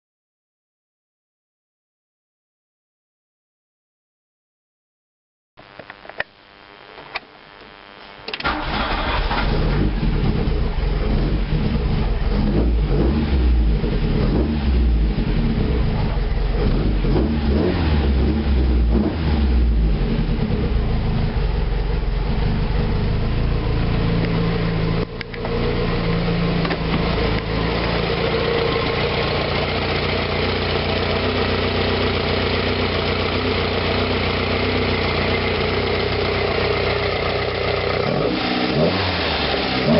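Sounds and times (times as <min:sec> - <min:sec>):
car engine revving and idling: 0:08.4 - 0:39.9.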